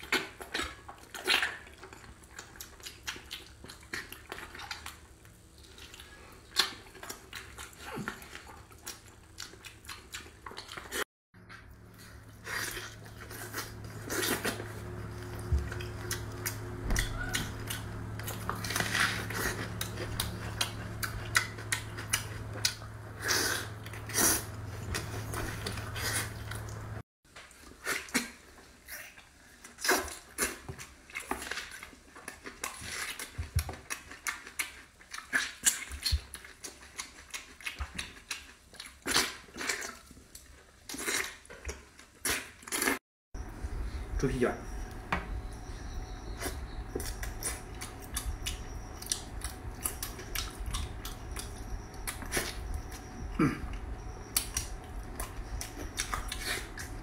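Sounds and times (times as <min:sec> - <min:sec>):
wet chewing and lip smacks: 0:00.0 - 0:11.0, 0:12.4 - 0:26.9, 0:27.6 - 0:43.0, 0:45.5 - 0:57.0
low hum: 0:11.4 - 0:27.0, 0:43.4 - 0:57.0.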